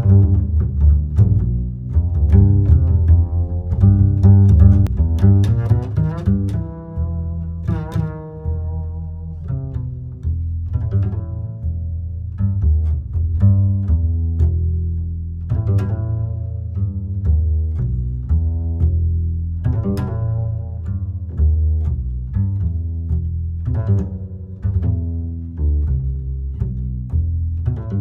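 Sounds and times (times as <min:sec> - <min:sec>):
low bass line: 0:00.0 - 0:28.0
plucked string instruments: 0:00.0 - 0:28.0.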